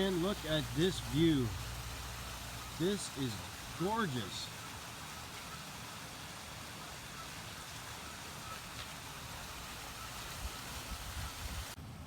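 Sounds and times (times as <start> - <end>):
steady hiss inside van cab: 0.0 - 4.5
low engine rumble: 0.0 - 5.3.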